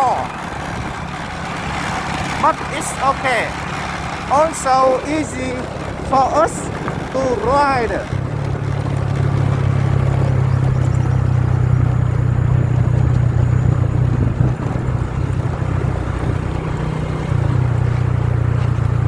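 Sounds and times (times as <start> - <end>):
motorbike engine cruising: 0.0 - 19.0
road noise: 0.0 - 19.0
wind on microphone: 4.9 - 16.5.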